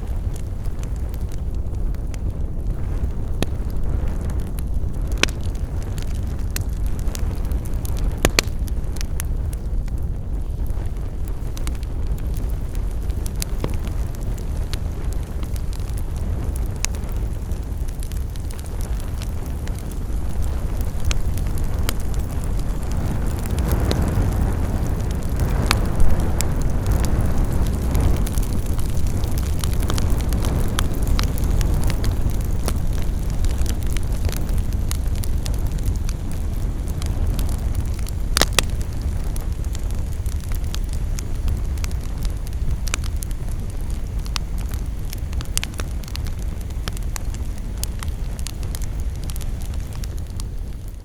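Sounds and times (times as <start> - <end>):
burning wood crackles and pops: 0.0 - 51.0
campfire low rumble: 0.0 - 51.0.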